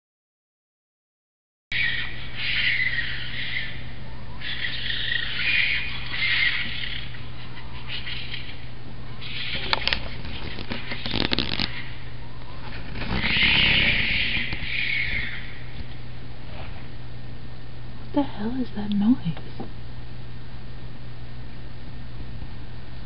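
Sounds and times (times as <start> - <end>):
foxes screaming: 1.7 - 15.9
steady low hum: 1.7 - 23.0
crackling: 4.4 - 16.8.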